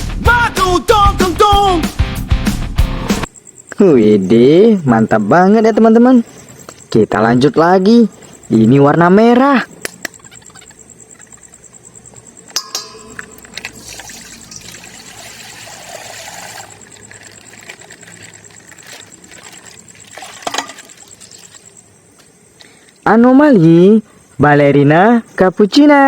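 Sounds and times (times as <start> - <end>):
sharp clicks: 9.8 - 10.2
water pouring and splashing: 13.5 - 21.8
plastic crinkling: 16.2 - 21.7.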